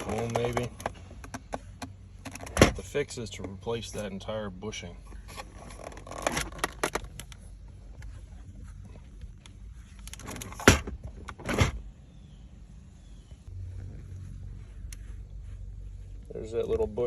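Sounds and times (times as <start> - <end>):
handling clicks and knocks: 0.0 - 4.3, 5.1 - 8.1.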